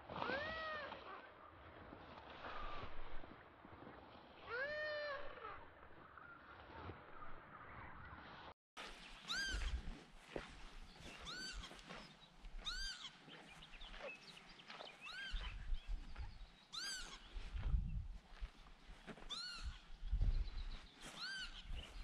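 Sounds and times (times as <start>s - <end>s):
bird scolding calls: 9.0s - 9.9s, 11.0s - 17.5s, 19.3s - 19.9s, 21.0s - 22.0s.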